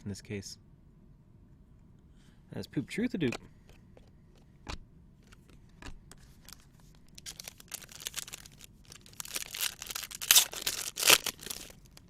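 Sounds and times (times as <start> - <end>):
wrapper tearing and crinkling: 6.3 - 12.0.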